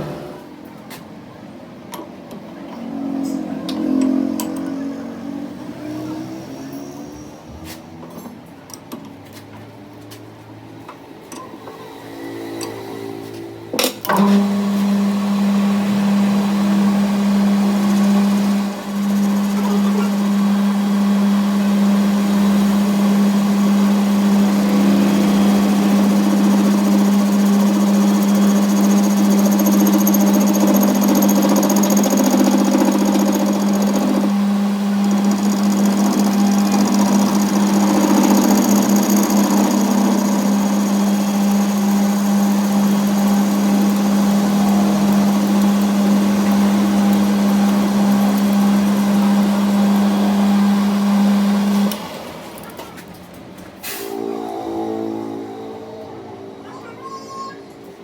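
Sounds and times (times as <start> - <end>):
machine humming with high whine: 14.4 - 52.0.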